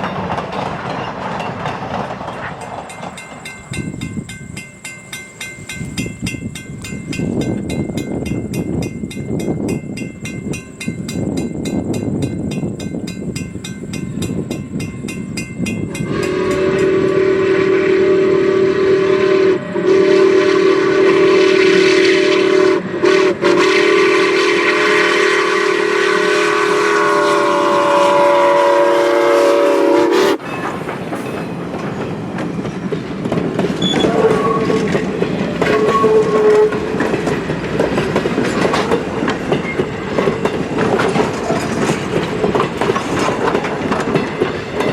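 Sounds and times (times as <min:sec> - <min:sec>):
train running clickety-clack: 0:00.0 - 0:44.9
steam locomotive whistle: 0:15.9 - 0:30.7, 0:33.8 - 0:37.2.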